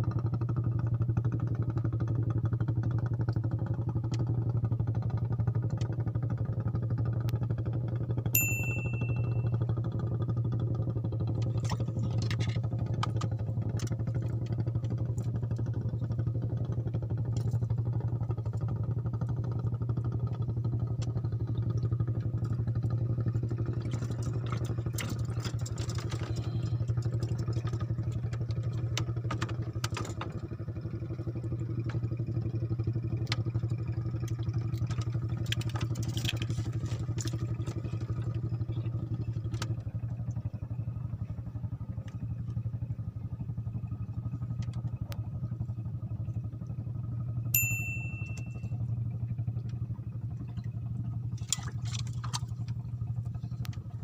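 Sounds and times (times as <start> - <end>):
small engine running steadily: 0.0 - 54.0.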